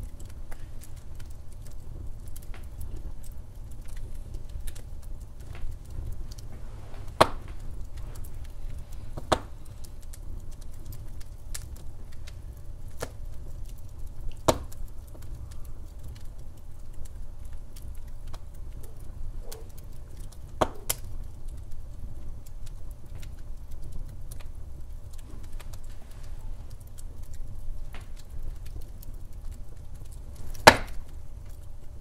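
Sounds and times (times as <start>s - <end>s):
burning log popping: 0.0s - 32.0s
low rumble of flames: 0.0s - 32.0s
wood fire crackling: 0.0s - 32.0s.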